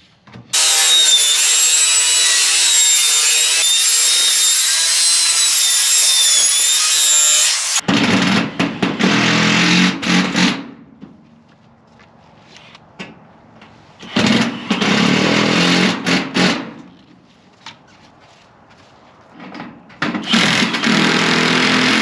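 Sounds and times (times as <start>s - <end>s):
power tool cutting metal: 0.5s - 7.8s, 20.3s - 22.0s.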